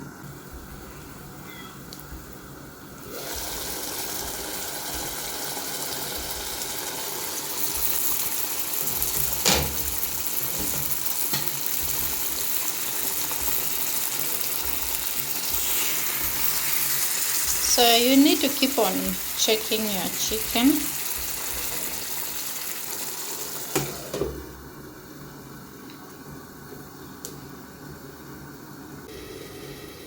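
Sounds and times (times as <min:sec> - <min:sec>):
curry sizzling in a pot: 0:01.9 - 0:24.2.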